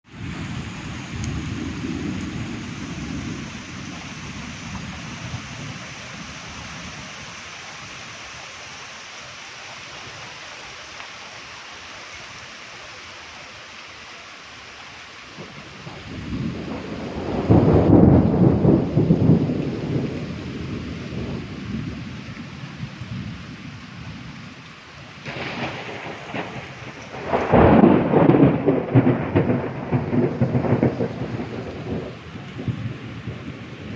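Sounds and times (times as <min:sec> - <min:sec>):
heavy rain hissing: 0:00.0 - 0:33.9
thunder rumbling: 0:00.1 - 0:08.2, 0:15.3 - 0:33.9.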